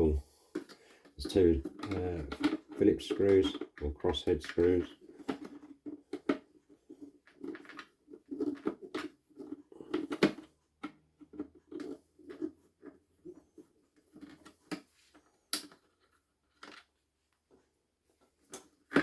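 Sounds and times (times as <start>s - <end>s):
plastic parts handled: 0.4s - 17.0s.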